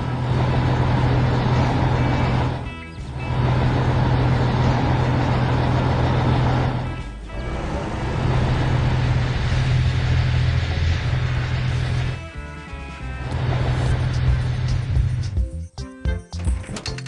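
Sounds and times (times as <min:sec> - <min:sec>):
cartoon engine hum: 0:00.0 - 0:12.2.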